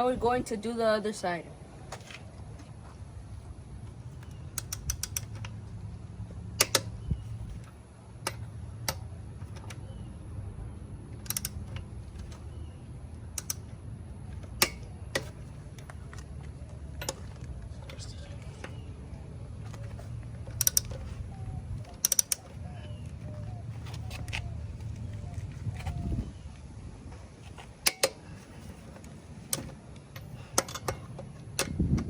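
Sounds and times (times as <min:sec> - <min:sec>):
steady low hum: 0:00.0 - 0:32.0
metallic clicks of hand tools: 0:04.2 - 0:05.6, 0:06.6 - 0:06.9, 0:11.2 - 0:12.4, 0:13.4 - 0:13.7, 0:14.5 - 0:15.9, 0:20.5 - 0:21.1, 0:21.8 - 0:22.5, 0:27.8 - 0:28.2, 0:29.5 - 0:31.8.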